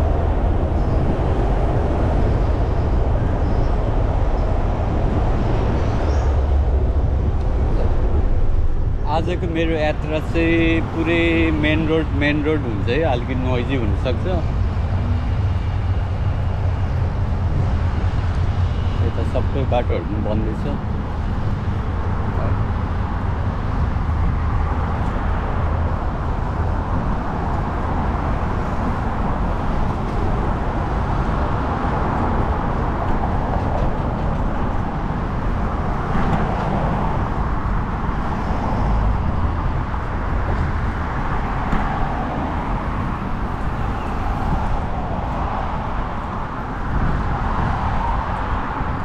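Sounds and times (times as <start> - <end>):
busy road traffic rumble: 0.0 - 49.0.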